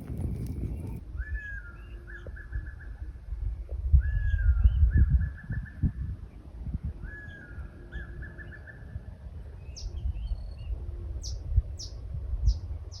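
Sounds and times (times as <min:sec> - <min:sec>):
low irregular rumble: 0:00.0 - 0:05.2
songbirds calling: 0:00.0 - 0:13.0.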